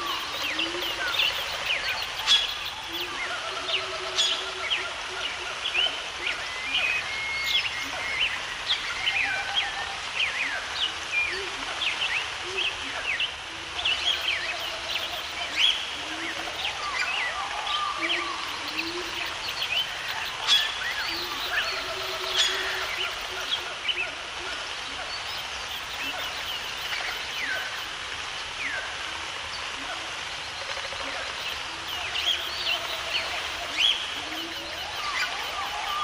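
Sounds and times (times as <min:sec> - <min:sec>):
background hiss: 0:00.0 - 0:36.0
wild birds chirping and calling: 0:00.0 - 0:36.0.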